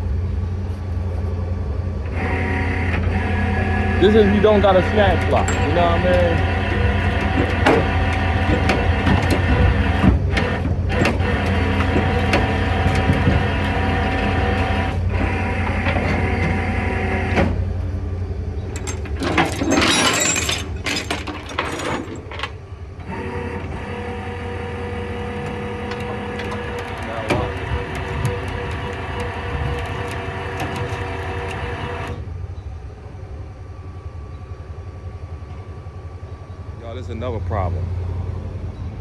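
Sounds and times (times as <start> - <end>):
tow truck engine running: 0.0 - 39.0
hydraulic winch pulling car: 2.0 - 32.6.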